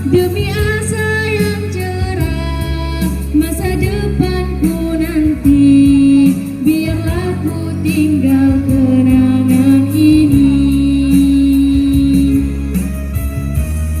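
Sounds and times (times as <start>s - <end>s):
instrumental backing: 0.0s - 14.0s
person singing long notes: 3.7s - 12.9s.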